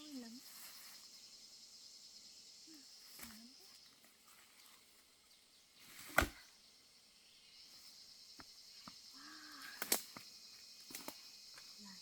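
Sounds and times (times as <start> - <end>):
high-pitched insect chirring: 0.0 - 4.1, 7.2 - 12.0.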